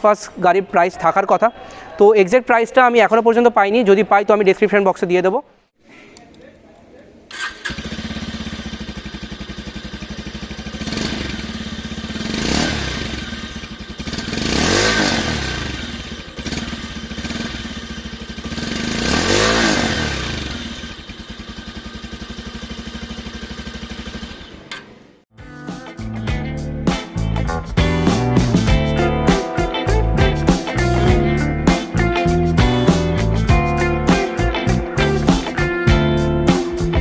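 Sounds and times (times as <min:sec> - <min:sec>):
motorcycle engine idling and revving: 0:07.4 - 0:25.2.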